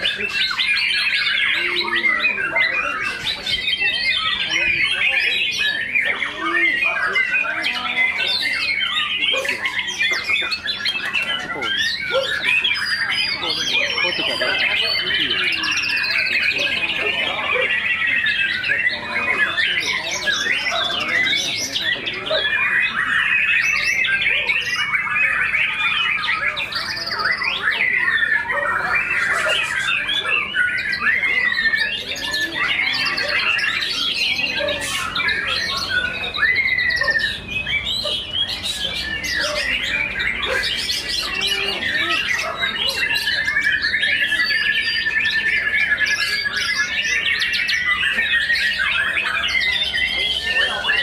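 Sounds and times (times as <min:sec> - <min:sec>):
birds singing: 0:00.0 - 0:51.0.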